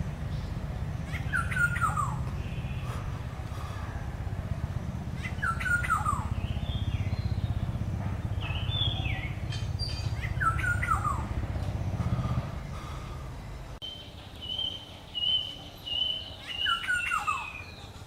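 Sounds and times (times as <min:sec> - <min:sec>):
steady low hum: 0:00.0 - 0:16.4
bird whistled calls gliding down: 0:01.0 - 0:03.0, 0:05.2 - 0:07.7, 0:08.4 - 0:11.3, 0:13.8 - 0:18.0.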